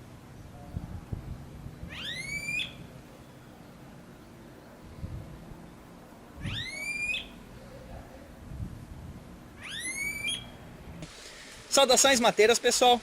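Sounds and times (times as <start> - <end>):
bird whistling call: 1.9 - 2.8, 6.4 - 7.4, 9.6 - 10.5.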